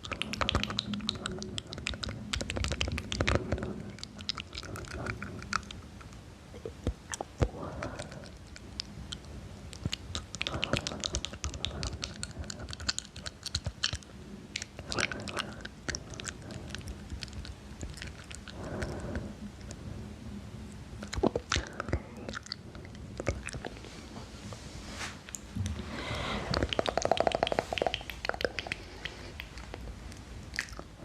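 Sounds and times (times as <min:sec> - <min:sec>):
wet mouth clicks and lip smacks: 0:00.0 - 0:19.8, 0:26.5 - 0:30.9
soft breathing: 0:00.0 - 0:31.0.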